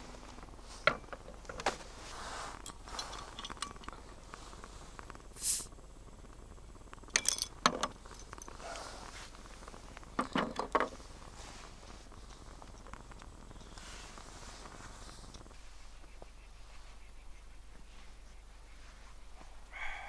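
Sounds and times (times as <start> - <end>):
knocks and clinks of objects handled: 0.8 - 1.8, 2.5 - 4.1, 7.1 - 8.6, 10.2 - 11.0
short hiss: 5.3 - 5.7.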